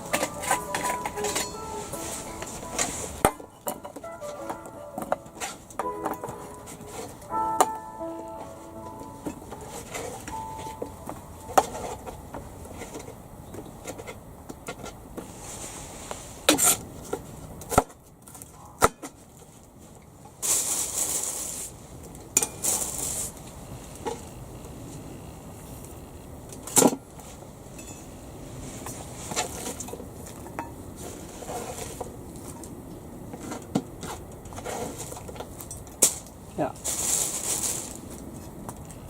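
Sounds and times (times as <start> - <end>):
cookware and utensils clinking: 0.0 - 2.5.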